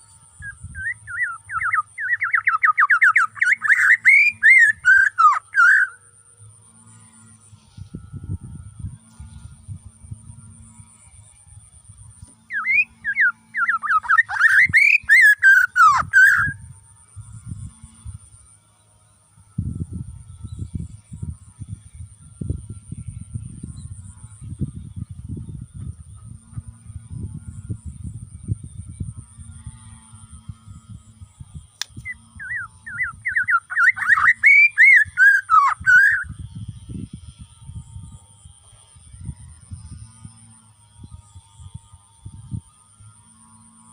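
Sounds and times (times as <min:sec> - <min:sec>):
bird singing whistled notes: 0:00.3 - 0:06.1, 0:12.5 - 0:16.7, 0:31.9 - 0:37.0.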